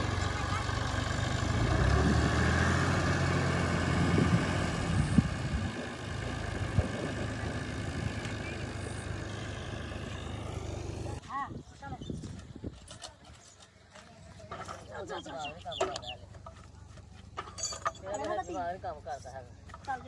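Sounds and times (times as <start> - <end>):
heavy diesel engine droning: 0.0 - 11.2.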